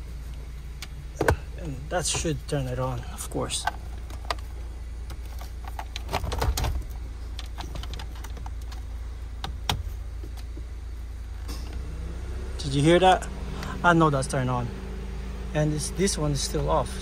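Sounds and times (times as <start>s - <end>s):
car engine idling: 0.0s - 17.0s
connector clicks and knocks: 3.6s - 10.6s.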